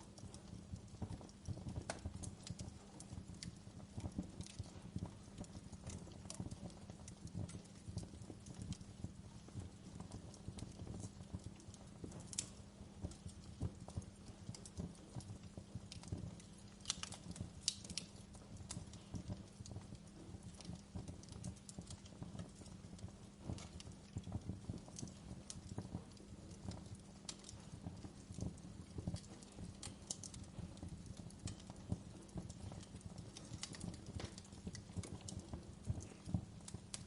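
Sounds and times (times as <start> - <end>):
low rumble of flames: 0.0 - 37.0
wood fire crackling: 0.0 - 37.0.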